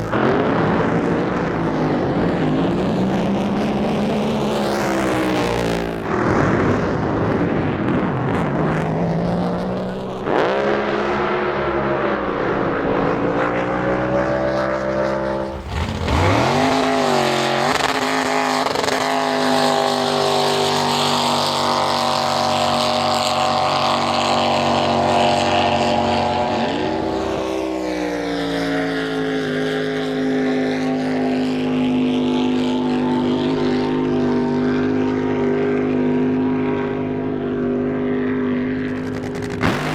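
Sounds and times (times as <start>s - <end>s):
boat engines revving: 9.9s - 39.9s.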